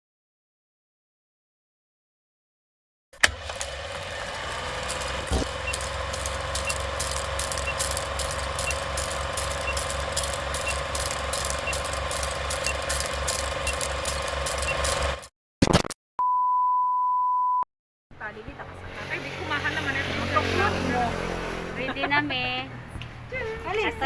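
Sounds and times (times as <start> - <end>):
machine running with low pulse: 3.6 - 15.3.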